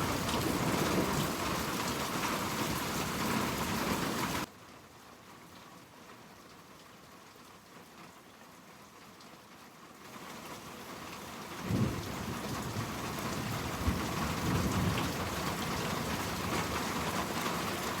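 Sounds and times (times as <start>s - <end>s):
thunder rumbling: 0.0s - 3.0s, 11.7s - 17.1s
steady rain falling: 0.0s - 18.0s.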